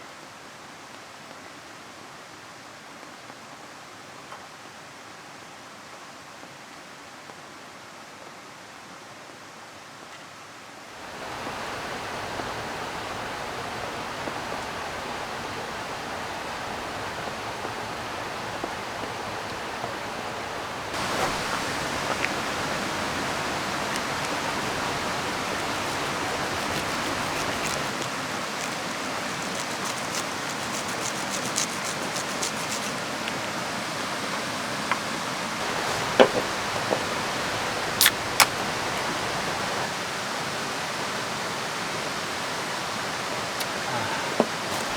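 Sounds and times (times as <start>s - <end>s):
falling rain: 11.0s - 44.9s
river water rushing: 11.0s - 44.9s.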